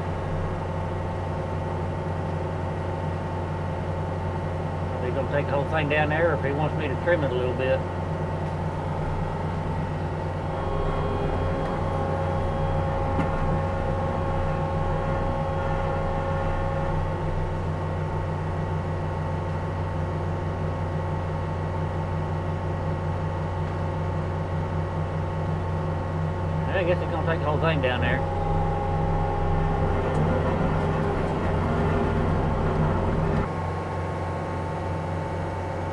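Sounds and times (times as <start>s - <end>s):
diesel engine running: 0.0s - 35.9s
high steady whine: 10.4s - 18.6s, 26.6s - 33.5s.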